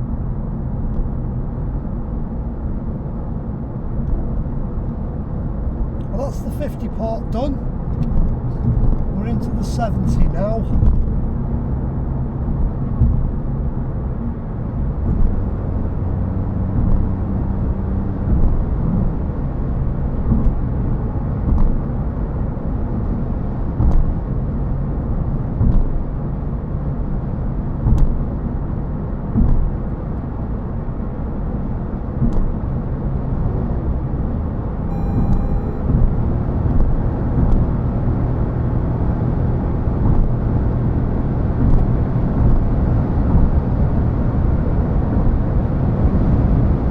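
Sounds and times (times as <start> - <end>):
high electronic tones: 34.9 - 35.9.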